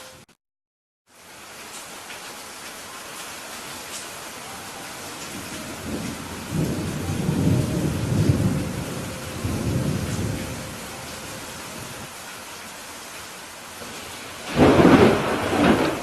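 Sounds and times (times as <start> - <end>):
steady rain hiss: 1.1 - 16.0
rolling thunder rumble: 5.2 - 12.1, 13.9 - 16.0.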